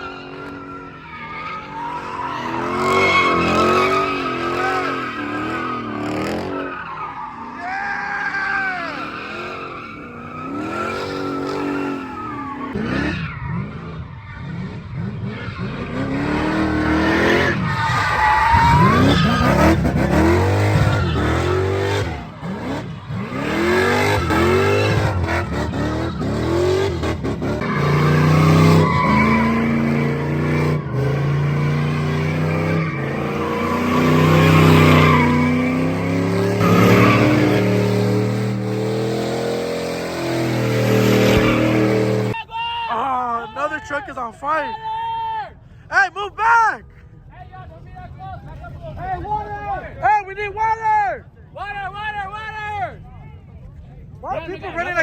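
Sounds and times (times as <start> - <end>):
car engines revving: 0.0 - 42.4
tires squealing and skidding: 0.0 - 43.0.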